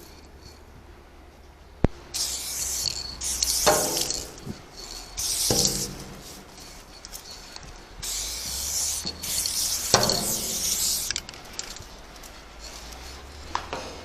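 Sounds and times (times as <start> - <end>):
aerosol spray can hissing: 2.2 - 6.8, 8.0 - 11.2.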